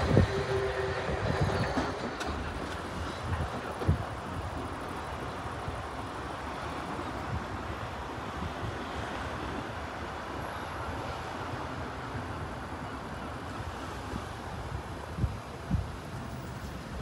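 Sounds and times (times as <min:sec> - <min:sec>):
electric train running: 0:00.0 - 0:06.9
wind rumbling on microphone: 0:00.0 - 0:10.2, 0:13.6 - 0:17.0.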